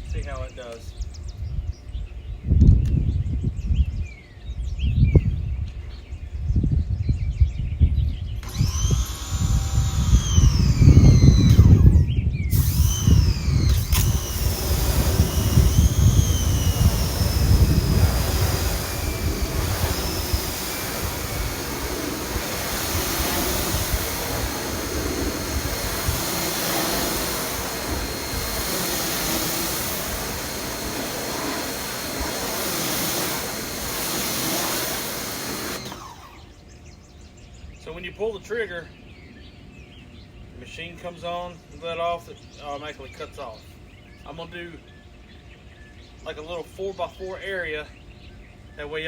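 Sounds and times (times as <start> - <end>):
pressure washer motor and pump whine: 8.4 - 36.8
water jet hissing: 12.5 - 36.4.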